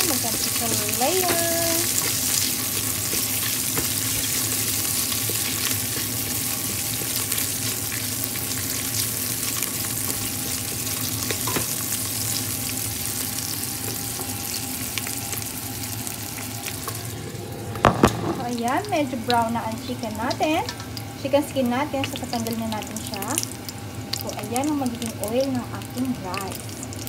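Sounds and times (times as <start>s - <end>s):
chicken skin sizzling in oil: 0.0s - 17.6s, 18.2s - 27.0s
fat popping and crackling: 16.5s - 19.4s.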